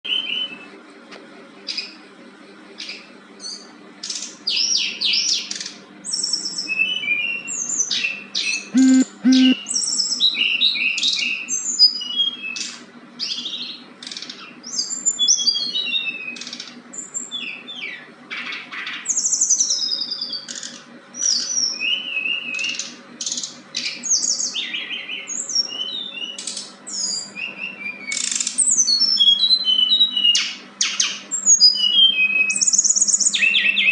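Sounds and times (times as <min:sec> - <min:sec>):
songbird chirping and trilling: 0:04.5 - 0:33.9
faint low hum: 0:08.8 - 0:09.6.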